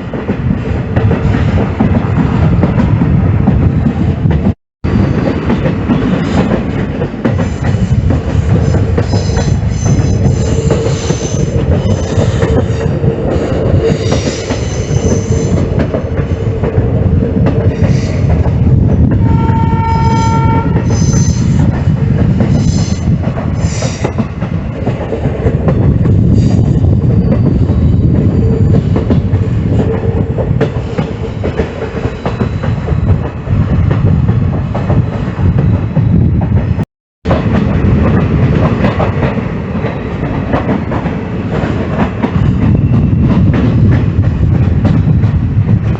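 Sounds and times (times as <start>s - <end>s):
train rumble and wheel clatter: 0.0s - 45.9s
train horn: 19.2s - 21.5s.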